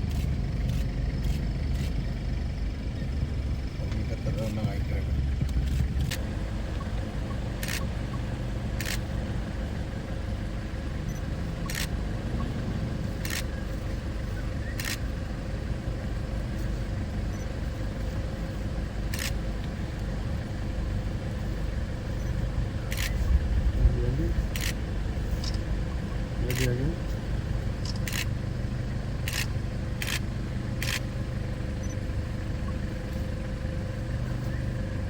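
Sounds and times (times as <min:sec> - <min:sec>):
vehicle engine rumble: 0:00.0 - 0:35.0
sharp clicks: 0:05.4 - 0:08.2, 0:08.8 - 0:09.2, 0:11.1 - 0:12.5, 0:13.2 - 0:13.6, 0:14.6 - 0:15.1, 0:19.1 - 0:20.1, 0:22.9 - 0:23.3, 0:24.5 - 0:24.8, 0:25.4 - 0:25.7, 0:27.8 - 0:28.4, 0:29.2 - 0:31.1.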